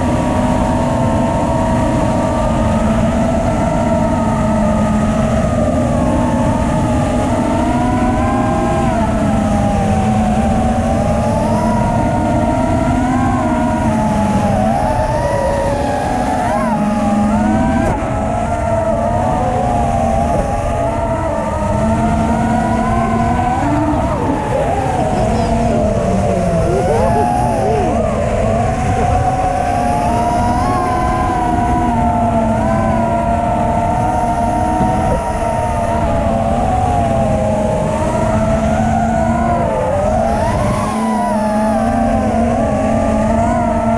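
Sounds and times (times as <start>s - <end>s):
drone motors whining: 0.0s - 43.9s
wind noise: 0.0s - 43.9s
steady rumble: 8.2s - 39.4s.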